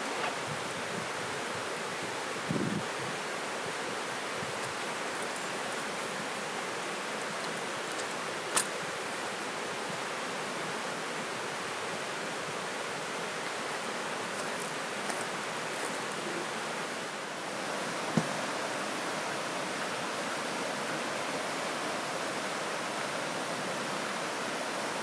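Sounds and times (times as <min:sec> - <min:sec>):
river rushing: 0:00.0 - 0:25.0.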